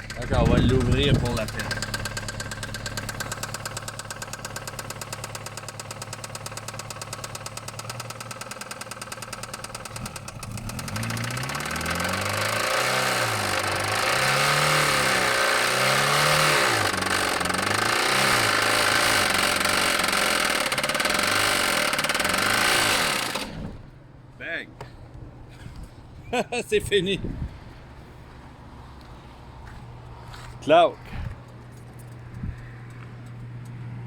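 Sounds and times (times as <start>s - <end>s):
car engine knocking and revving: 0.0s - 23.6s.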